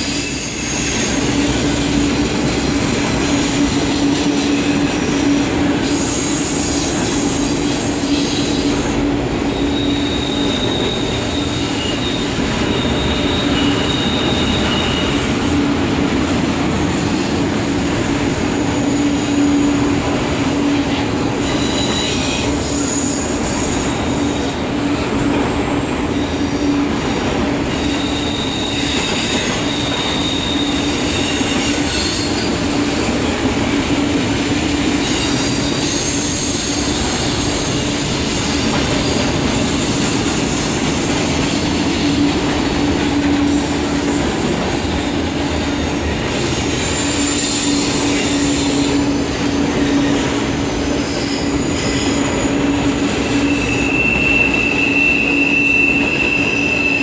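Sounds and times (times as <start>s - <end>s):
high wheel squeals: 0.0s - 2.2s, 5.8s - 15.6s, 16.9s - 24.5s, 26.1s - 32.9s, 35.0s - 40.9s, 46.7s - 50.3s, 50.9s - 57.0s
freight train wheels rolling: 0.0s - 57.0s.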